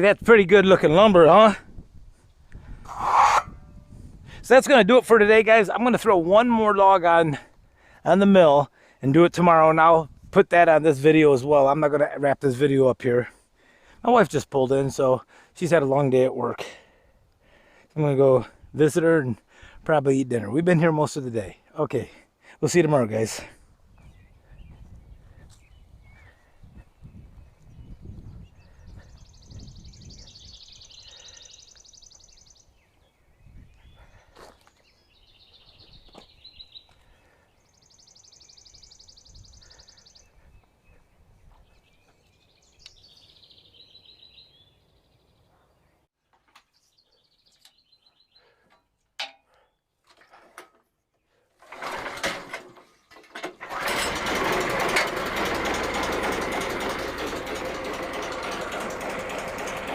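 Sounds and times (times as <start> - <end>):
birds singing: 20.4 - 50.2, 51.0 - 51.6
small engine running: 51.6 - 59.9.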